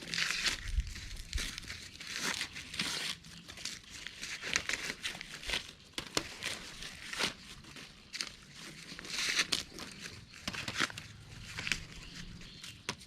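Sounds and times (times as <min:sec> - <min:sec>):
dry corn leaves rustling: 0:00.0 - 0:13.0
corn ears snapping: 0:09.1 - 0:12.0.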